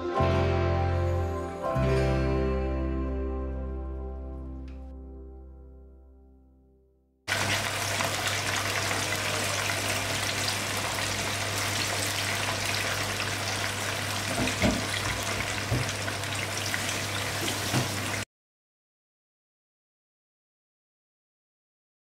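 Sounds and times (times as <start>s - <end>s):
food sizzling in hot oil: 7.3s - 18.2s
knocks: 14.3s - 16.0s.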